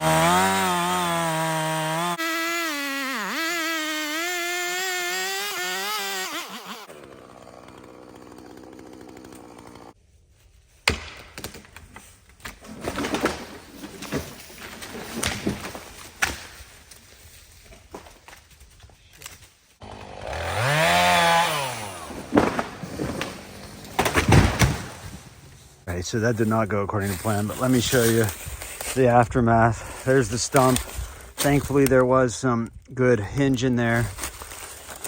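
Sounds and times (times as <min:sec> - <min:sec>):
chainsaw running: 0:00.0 - 0:10.0, 0:19.8 - 0:24.2
wood cracking and snapping: 0:10.8 - 0:16.6, 0:20.2 - 0:25.2.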